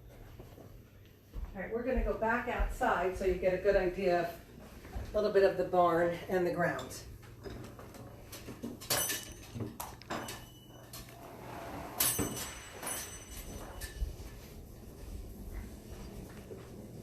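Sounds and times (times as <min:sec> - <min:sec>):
steady low hum: 0:10.5 - 0:17.0.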